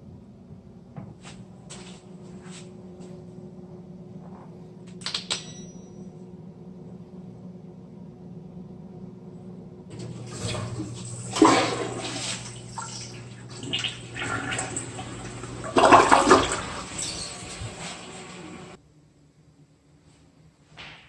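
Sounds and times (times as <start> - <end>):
toilet flushing: 9.9 - 18.8.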